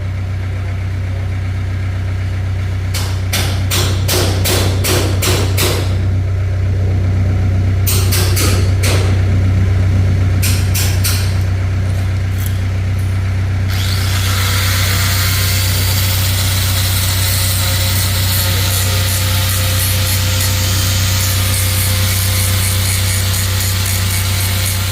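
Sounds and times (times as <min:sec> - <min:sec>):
low engine hum: 0:00.0 - 0:23.0
sharp knocks: 0:02.9 - 0:06.0, 0:07.8 - 0:09.2
power tool grinding: 0:10.6 - 0:24.9.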